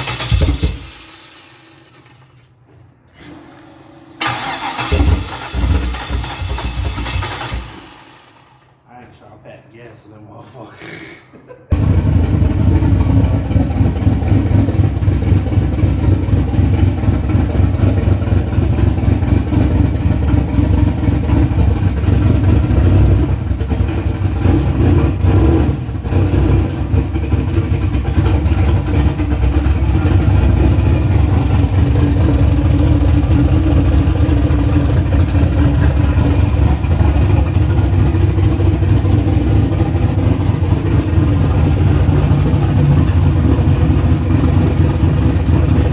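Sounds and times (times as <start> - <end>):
loud engine running: 11.7 - 45.9.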